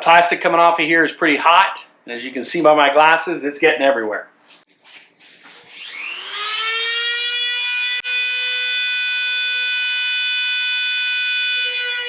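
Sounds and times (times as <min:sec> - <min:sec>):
rotary tool whining while cutting plastic: 0:05.4 - 0:08.7.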